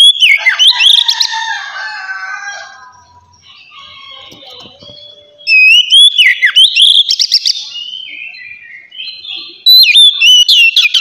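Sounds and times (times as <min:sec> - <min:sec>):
bird chattering notes: 0:02.9 - 0:11.0
bird singing whistled phrases: 0:03.4 - 0:11.0.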